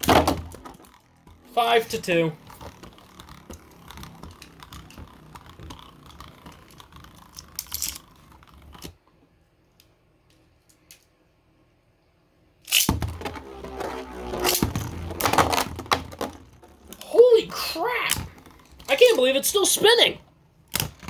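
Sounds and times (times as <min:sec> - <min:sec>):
spinning top launcher rasp: 0:00.0 - 0:08.9, 0:12.7 - 0:20.9
plastic toy parts clicking: 0:02.4 - 0:09.0, 0:14.4 - 0:20.1, 0:20.7 - 0:21.0.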